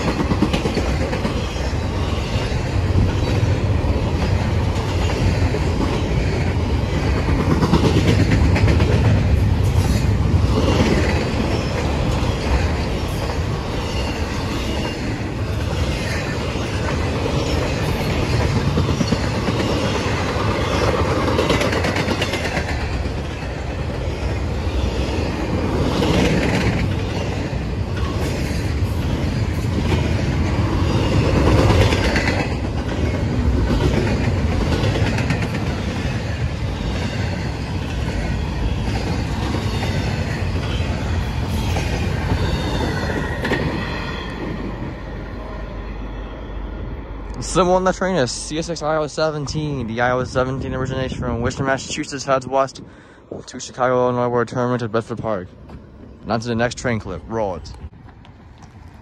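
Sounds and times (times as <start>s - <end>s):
wheels clacking over rail joints: 0.0s - 45.0s
freight train wheels rumbling: 0.0s - 59.0s.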